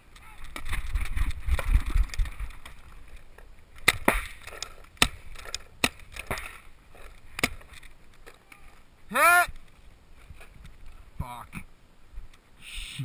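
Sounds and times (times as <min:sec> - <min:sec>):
paintball markers firing: 0:03.8 - 0:06.6.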